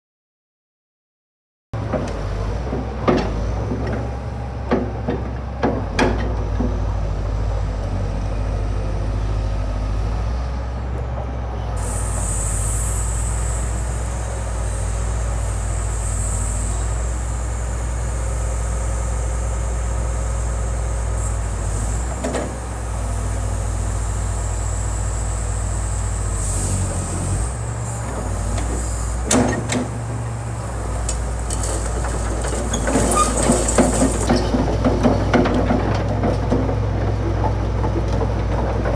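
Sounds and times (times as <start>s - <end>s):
excavator diesel engine idling: 27.1s - 38.9s.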